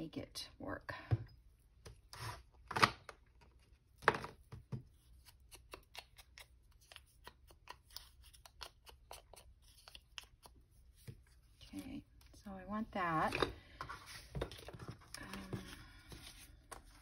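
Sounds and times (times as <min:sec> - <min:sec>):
scissors snipping paper: 0:05.1 - 0:10.6.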